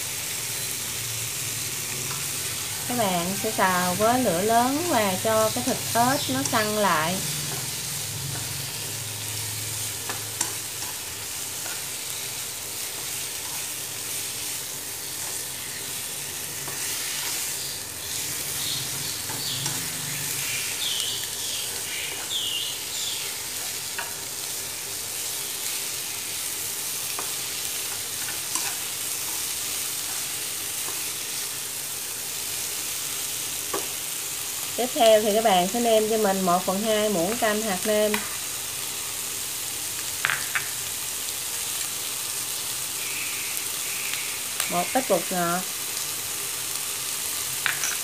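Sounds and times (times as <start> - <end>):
meat sizzling in a pan: 0.0 - 48.0
chopsticks tapping and scraping: 5.5 - 8.6, 27.1 - 31.1, 47.6 - 48.0.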